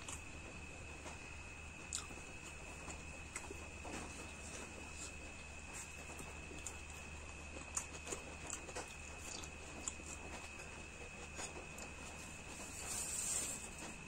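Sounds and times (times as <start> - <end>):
chewing with wet mouth clicks: 1.9 - 2.3, 4.2 - 12.2.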